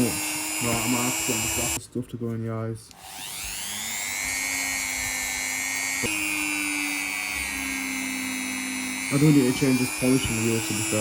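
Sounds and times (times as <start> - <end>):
rotary tool whining: 0.0 - 1.8, 2.9 - 11.0.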